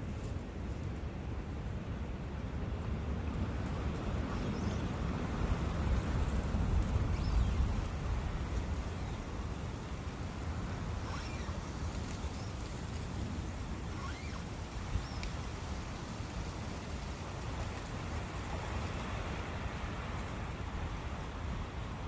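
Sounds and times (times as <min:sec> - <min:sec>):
brook rushing water: 0:01.8 - 0:22.0.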